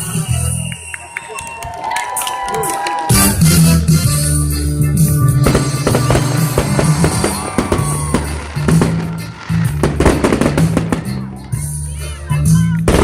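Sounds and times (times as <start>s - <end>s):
music with heavy bass and drums: 3.1s - 13.0s
fireworks banging: 5.2s - 12.1s.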